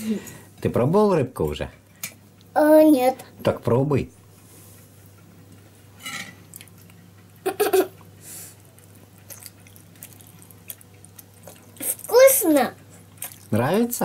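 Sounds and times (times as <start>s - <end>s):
faint steady hum: 0.0s - 14.0s
child chewing and eating: 4.4s - 14.0s
child voiced sound: 11.8s - 12.8s.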